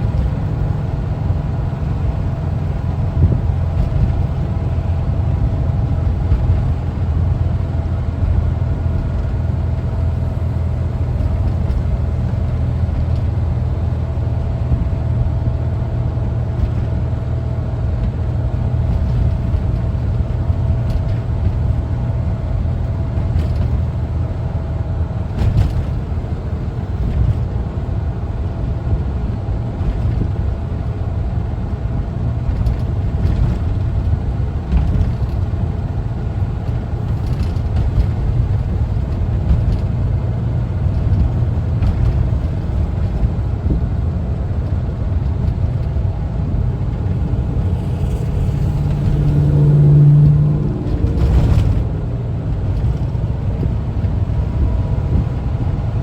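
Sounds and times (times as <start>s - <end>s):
van engine and road noise: 0.0s - 56.0s.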